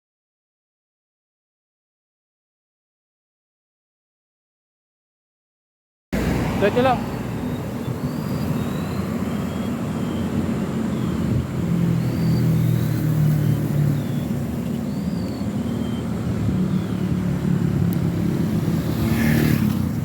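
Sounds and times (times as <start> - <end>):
road and wind rumble: 6.2 - 20.0
vehicle engines running: 6.2 - 20.0.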